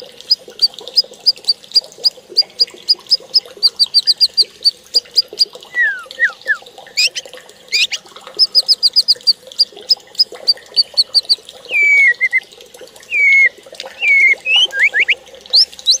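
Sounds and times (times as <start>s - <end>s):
birds whistling lower: 2.4s - 12.4s, 13.1s - 16.0s
birds chirping high notes: 5.1s - 9.3s, 10.8s - 12.4s, 13.1s - 16.0s.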